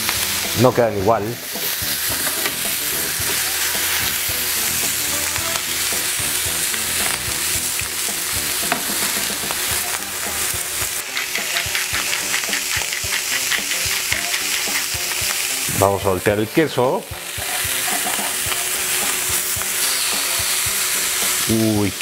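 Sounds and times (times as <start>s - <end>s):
food sizzling in frying pan: 0.0s - 22.0s
spice mill grinding: 1.4s - 15.7s, 17.2s - 21.5s
spatula knocking and scraping pan: 1.5s - 4.2s, 8.0s - 15.5s, 17.1s - 19.7s.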